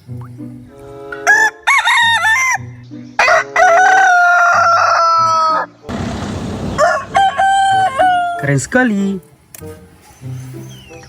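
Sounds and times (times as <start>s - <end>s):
quiet background music: 0.0s - 5.9s, 6.8s - 11.0s
rooster crowing: 1.2s - 2.6s, 3.2s - 5.8s, 6.7s - 8.4s.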